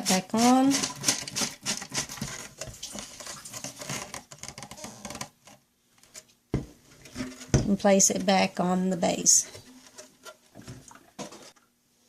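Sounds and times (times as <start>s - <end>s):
plastic cap clicking and scraping: 0.4s - 6.2s
plastic thump: 6.5s - 7.7s.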